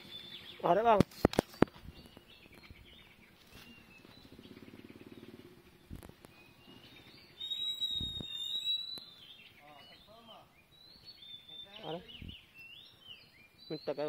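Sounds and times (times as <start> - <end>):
birds chirping faintly: 0.0 - 14.0
high whistled call: 6.3 - 14.0.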